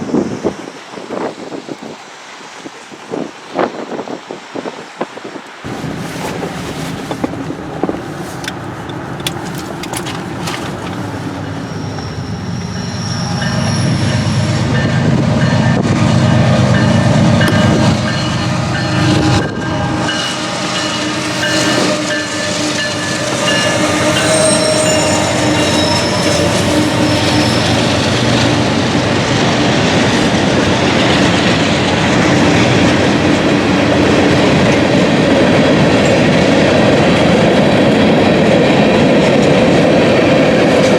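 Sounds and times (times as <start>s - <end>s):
freight train rumble: 0.0s - 40.9s
wheels clicking over rail joints: 5.7s - 15.2s.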